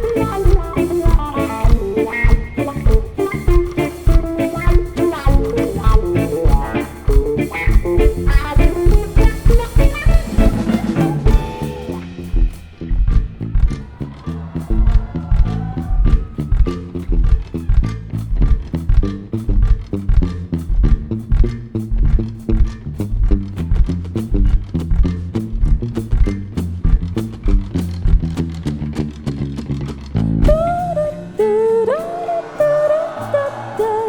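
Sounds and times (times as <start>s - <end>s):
rock band playing live: 0.0s - 17.8s
guitar melody: 0.0s - 33.0s.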